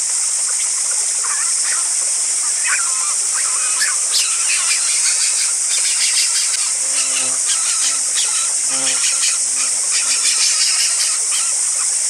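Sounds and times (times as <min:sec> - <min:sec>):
high-pitched insect drone: 0:00.0 - 0:12.0
birds chirping: 0:01.2 - 0:11.9
squeal-like call: 0:03.4 - 0:11.6.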